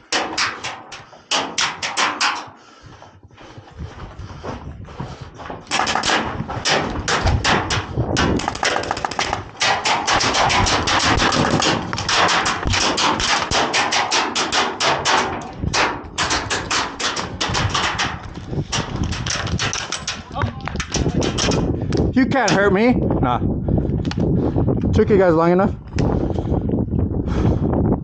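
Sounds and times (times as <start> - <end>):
airsoft guns rapid firing: 5.7 - 20.2.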